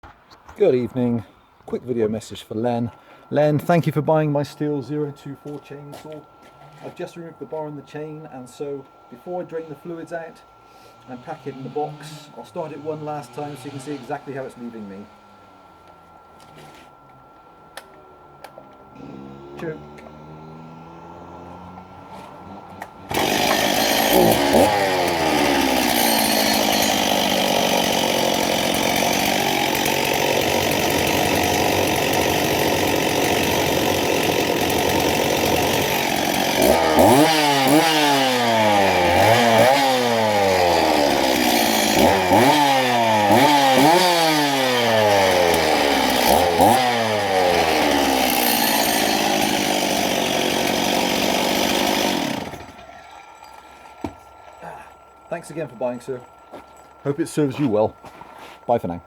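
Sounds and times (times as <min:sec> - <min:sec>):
chainsaw engine revving: 0:11.0 - 0:15.3, 0:19.0 - 0:56.2.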